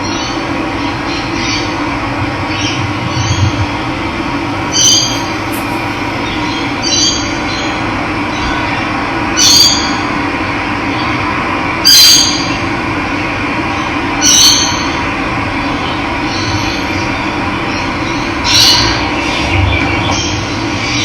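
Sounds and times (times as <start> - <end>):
bird calling: 4.6 - 7.6.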